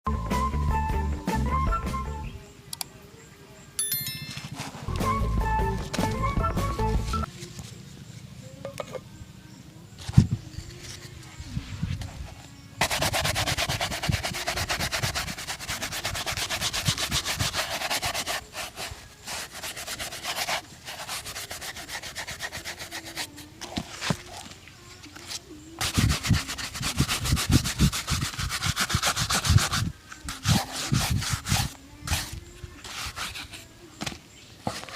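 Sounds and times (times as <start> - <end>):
shoe being rubbed: 10.1 - 34.9.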